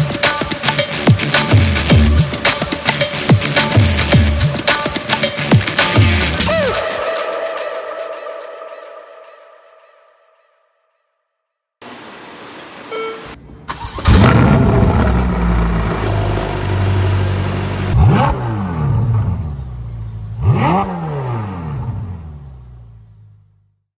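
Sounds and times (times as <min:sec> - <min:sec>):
engine throttle blips: 0:11.8 - 0:23.7
car engine starting and idling: 0:11.8 - 0:23.8.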